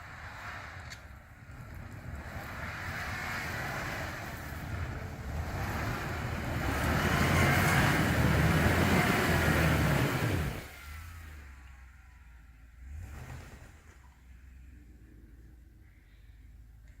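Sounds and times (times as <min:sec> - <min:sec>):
rushing noise: 0:01.5 - 0:10.8
pickup engine working hard: 0:01.6 - 0:10.8.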